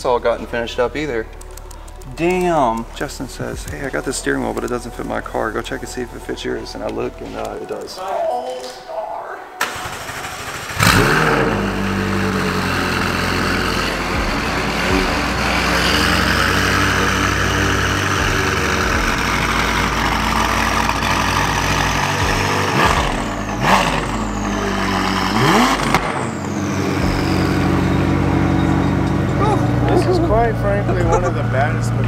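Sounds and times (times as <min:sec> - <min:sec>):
car engine idling: 0:09.6 - 0:32.0
engine rev blips: 0:09.6 - 0:32.0.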